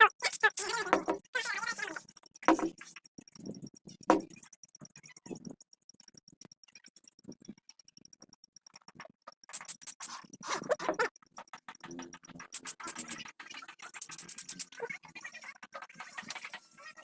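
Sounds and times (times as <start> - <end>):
faint fast ticking: 0.0 - 15.7.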